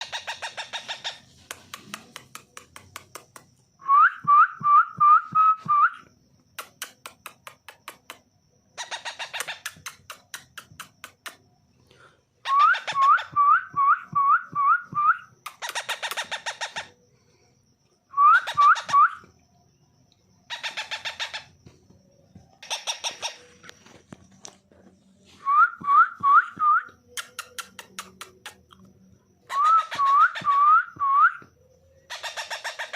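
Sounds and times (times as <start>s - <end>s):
parrot chick begging chirps: 22.6s - 23.5s, 32.1s - 32.9s.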